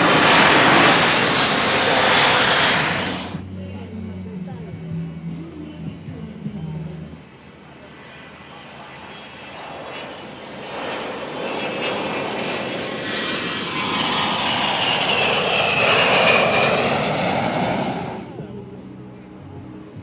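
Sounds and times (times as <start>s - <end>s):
jet passing with engine whine: 0.0s - 3.4s, 7.1s - 18.5s.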